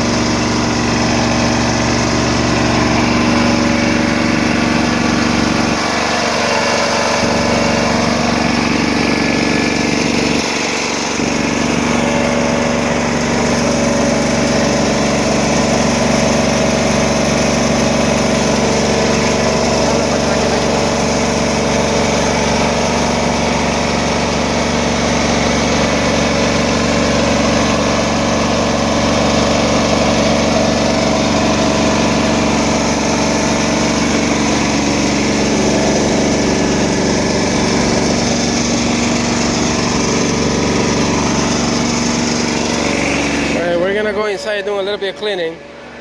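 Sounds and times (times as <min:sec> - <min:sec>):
engine hum: 0:00.0 - 0:46.0.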